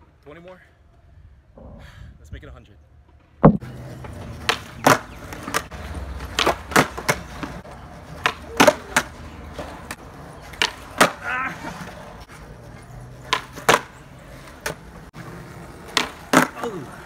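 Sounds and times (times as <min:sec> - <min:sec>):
skateboard wheels rolling on concrete: 0:02.7 - 0:17.0
skateboard landing clack: 0:03.3 - 0:07.6, 0:08.2 - 0:09.1, 0:09.9 - 0:11.2, 0:13.3 - 0:14.0, 0:15.9 - 0:16.6
loud knock: 0:03.4 - 0:03.6
skateboard tail cracking on concrete: 0:03.4 - 0:17.0.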